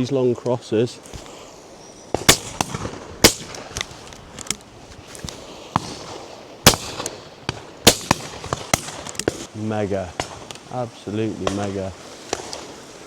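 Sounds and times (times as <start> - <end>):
loud shotgun shots: 2.1 - 3.8, 5.8 - 9.5, 10.2 - 10.5
distant gunshots: 2.1 - 3.9, 5.8 - 9.5, 10.2 - 10.6.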